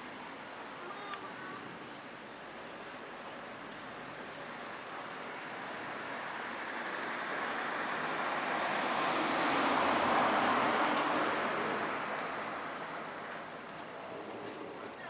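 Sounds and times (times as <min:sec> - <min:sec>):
rapid insect chirping: 0:00.0 - 0:01.1, 0:01.9 - 0:03.1, 0:04.0 - 0:14.1
road vehicle passing: 0:05.5 - 0:14.9.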